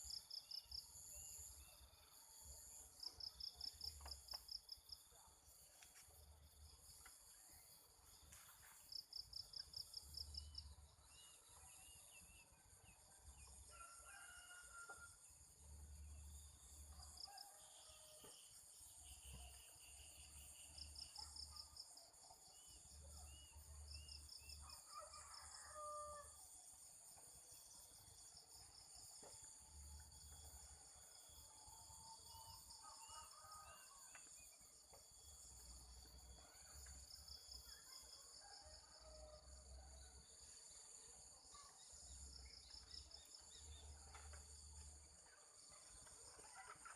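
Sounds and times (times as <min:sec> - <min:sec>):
crickets and insects buzzing: 0:00.0 - 0:46.9
distant rooster crowing: 0:13.6 - 0:15.3, 0:24.6 - 0:26.4.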